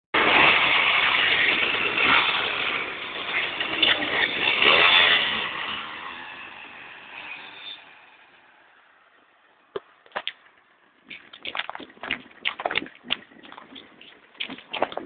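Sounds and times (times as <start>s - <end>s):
small motorcycle engines revving: 0.2s - 9.1s.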